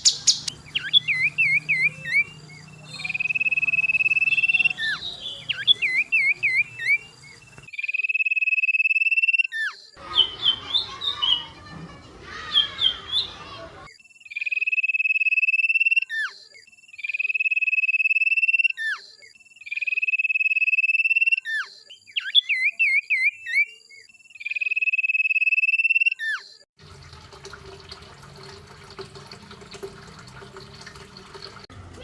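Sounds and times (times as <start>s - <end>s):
songbird trilling and warbling: 0.0s - 7.7s, 10.0s - 14.5s.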